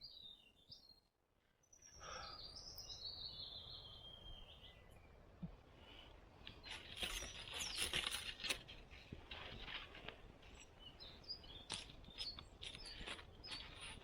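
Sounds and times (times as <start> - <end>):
rustling and crackling: 6.4 - 14.0
small bird chirps: 10.8 - 14.0.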